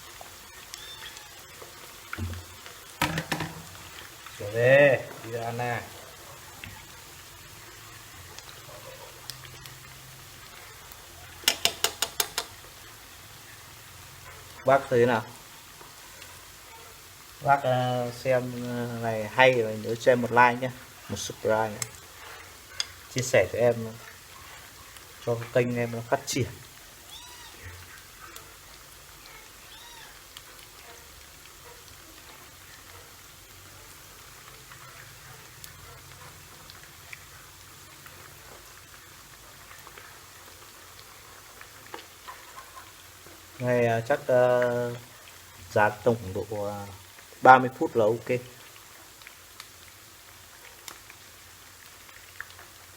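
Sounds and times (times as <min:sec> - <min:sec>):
oil frying chicken in pan: 0:00.0 - 0:52.9.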